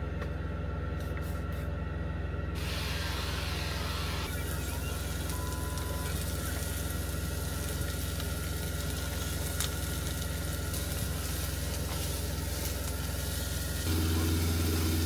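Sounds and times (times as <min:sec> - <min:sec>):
diesel truck engine idling: 0:00.0 - 0:15.0
food sizzling in a pan: 0:10.8 - 0:15.0.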